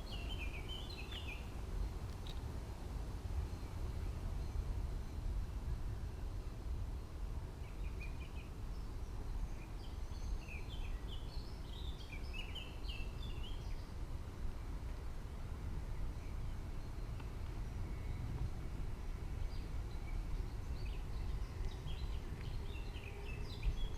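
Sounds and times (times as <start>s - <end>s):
birds chirping: 0.0s - 1.5s, 15.9s - 23.9s
low rumbling background noise: 0.0s - 23.9s.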